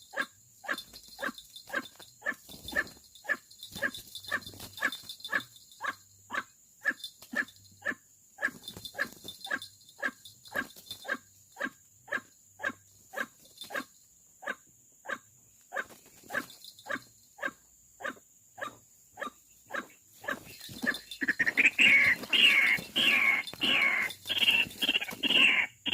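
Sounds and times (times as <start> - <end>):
loud varied bird calling: 18.6 - 25.9
bird calling harsh notes: 19.7 - 25.9.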